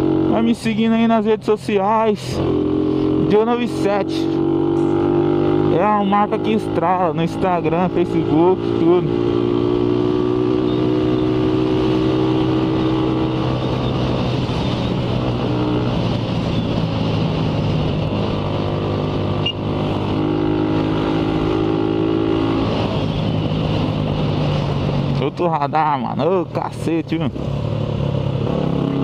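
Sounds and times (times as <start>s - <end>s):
motorcycle engine cruising: 0.0s - 29.0s
wind rushing over microphone: 0.0s - 29.0s.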